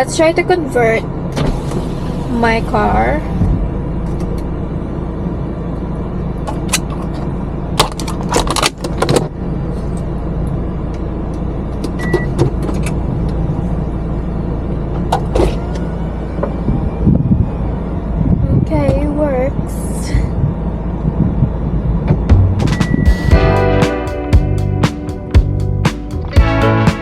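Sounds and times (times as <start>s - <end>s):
car engine humming: 0.0s - 27.0s
high beep: 22.6s - 23.6s.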